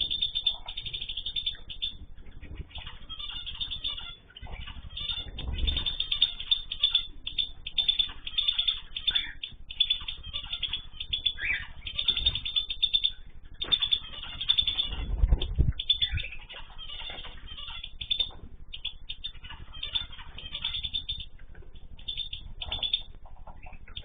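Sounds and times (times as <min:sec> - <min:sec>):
caged birds chirping: 0:00.0 - 0:24.0
low thumps of birds moving: 0:08.9 - 0:24.0.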